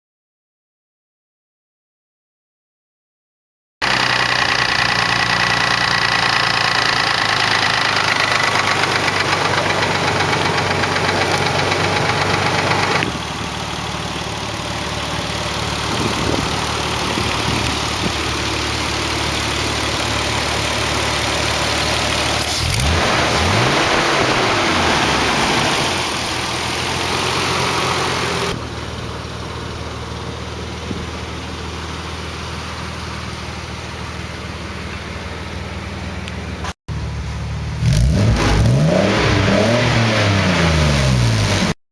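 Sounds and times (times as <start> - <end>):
engine revving: 3.8 - 29.0, 36.9 - 41.8
car engine idling: 3.8 - 38.2.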